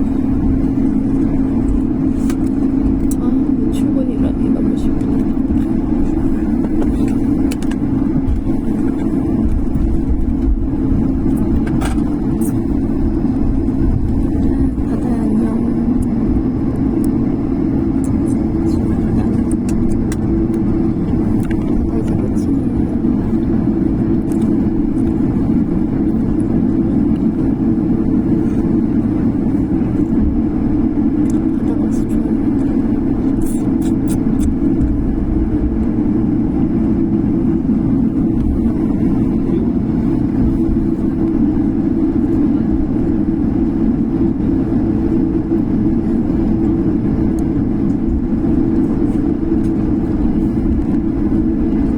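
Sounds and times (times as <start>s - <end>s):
airliner cabin engine drone: 0.0s - 51.9s.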